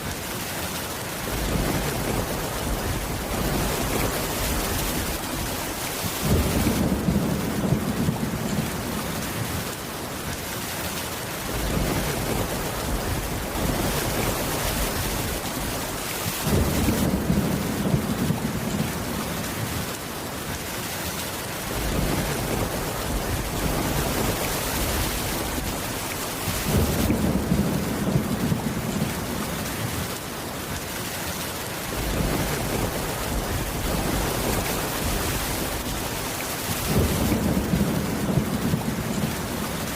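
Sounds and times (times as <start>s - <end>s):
heavy rain: 0.0s - 39.9s
rolling thunder: 6.1s - 9.0s, 21.7s - 29.4s, 31.9s - 39.9s.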